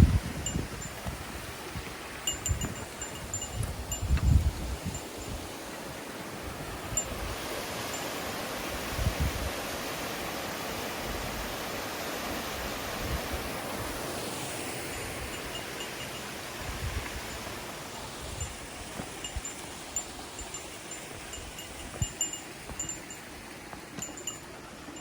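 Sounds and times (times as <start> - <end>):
wind rumble on microphone: 0.0 - 5.5, 8.7 - 9.6, 16.5 - 19.5
water rushing: 0.0 - 25.0.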